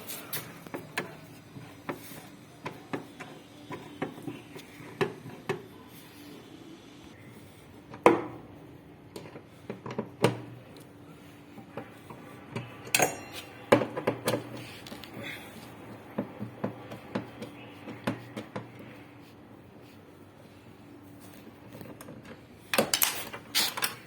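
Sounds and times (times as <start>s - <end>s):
metallic tool clinks and knocks: 12.9s - 13.6s.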